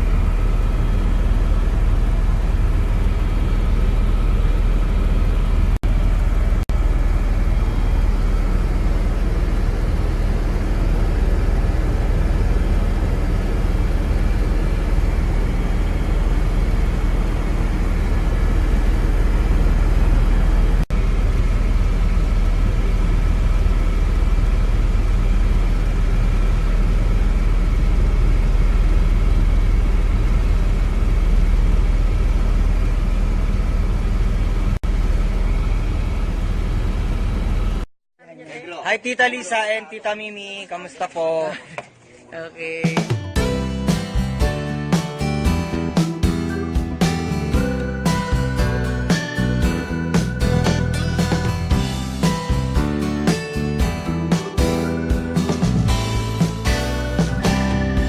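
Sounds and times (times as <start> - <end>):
helicopter cabin noise: 6.4 - 20.8.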